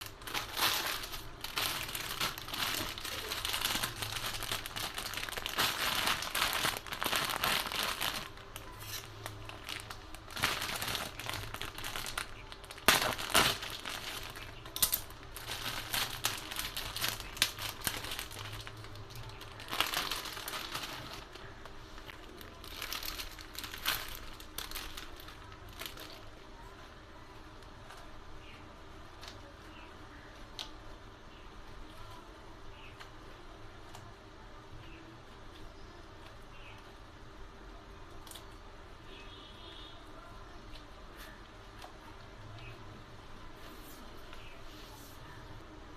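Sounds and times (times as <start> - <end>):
plastic packaging crinkling: 0.0 - 26.4.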